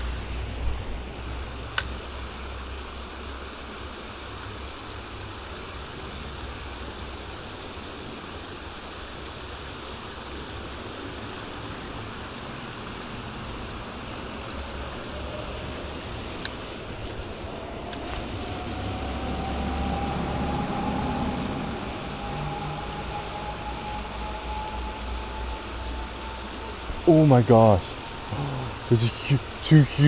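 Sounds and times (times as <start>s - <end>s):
creek water rushing over rocks: 0.0s - 19.0s, 25.0s - 30.0s
low rumble: 14.8s - 29.6s.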